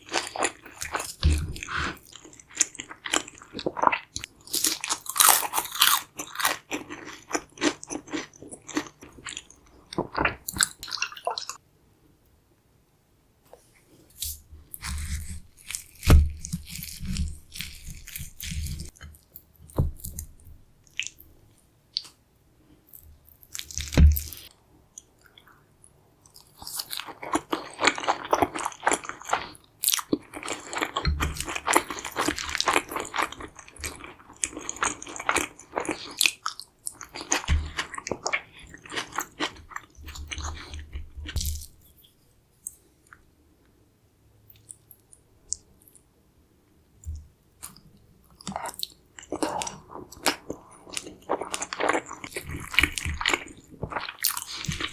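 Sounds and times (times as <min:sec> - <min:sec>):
crunchy food chewing: 0:00.0 - 0:11.6, 0:14.6 - 0:21.2, 0:26.2 - 0:41.8, 0:48.4 - 0:54.9.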